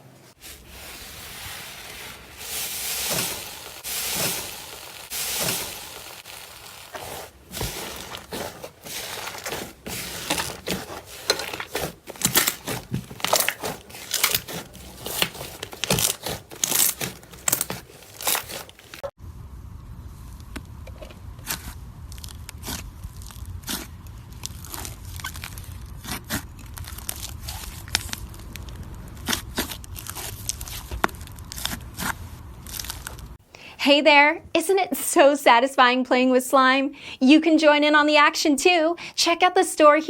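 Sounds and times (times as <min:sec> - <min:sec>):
low steady hum: 0:00.0 - 0:33.4
slime crackling and popping: 0:00.8 - 0:19.1, 0:21.4 - 0:33.4.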